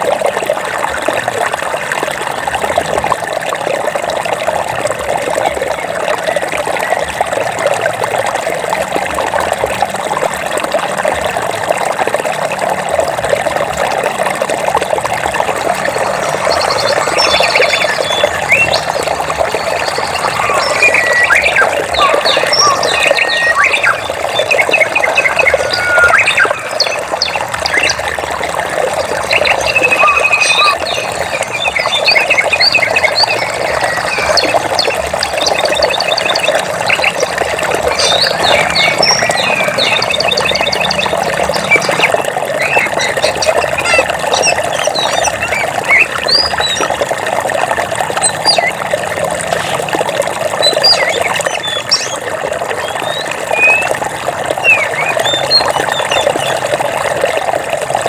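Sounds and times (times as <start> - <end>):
flowing water rushing: 0.0 - 58.0
birds chirping and trilling: 15.4 - 47.0, 48.2 - 48.8, 50.6 - 56.6.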